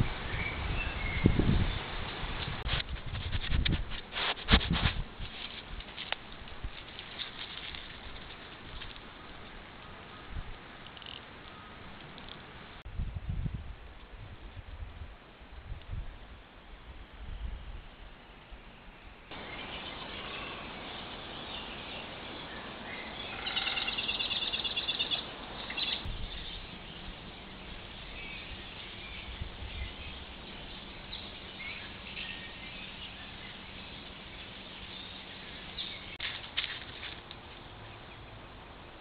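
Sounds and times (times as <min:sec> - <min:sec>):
bird calls: 0:19.3 - 0:36.2
fast trilling bird call: 0:23.0 - 0:26.6.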